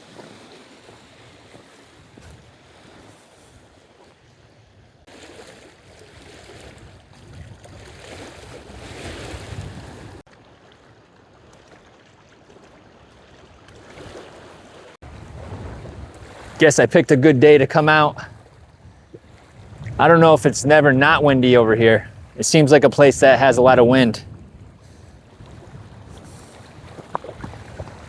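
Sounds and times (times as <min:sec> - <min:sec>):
small waves lapping on rocks: 0:00.0 - 0:04.2, 0:05.0 - 0:17.2, 0:24.8 - 0:28.0
wind gusting across microphone: 0:01.2 - 0:03.8, 0:06.1 - 0:10.2, 0:15.0 - 0:28.0.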